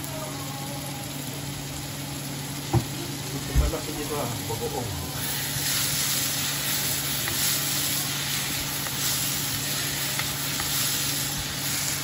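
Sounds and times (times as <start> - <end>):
onions sizzling in hot oil: 0.0 - 12.0
wooden spatula scraping a pan: 5.2 - 12.0.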